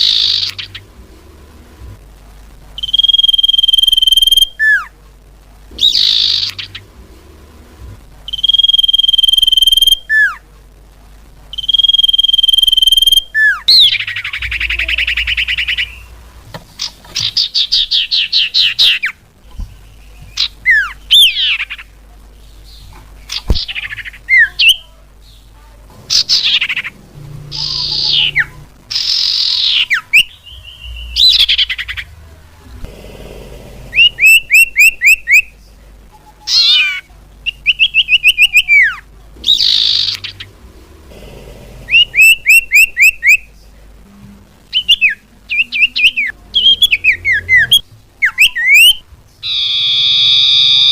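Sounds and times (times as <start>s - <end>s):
bird whistles and trills: 44.7s - 50.9s.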